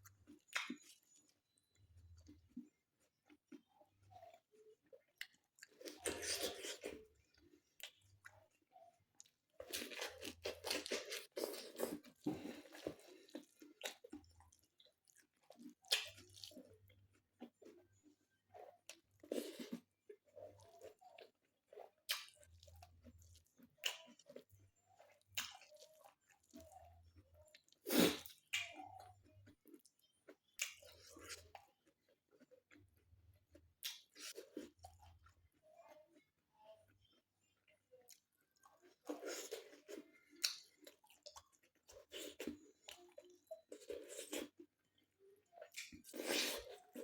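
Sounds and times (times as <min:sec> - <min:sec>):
person chewing crunchy food: 0:00.0 - 0:36.4, 0:37.0 - 0:47.0.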